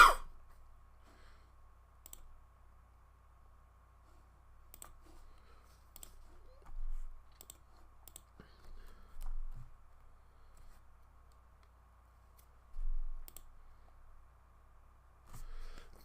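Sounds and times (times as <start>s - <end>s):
computer clicks: 2.0s - 2.3s, 4.7s - 5.0s, 5.9s - 6.2s, 7.3s - 8.4s, 13.2s - 13.6s.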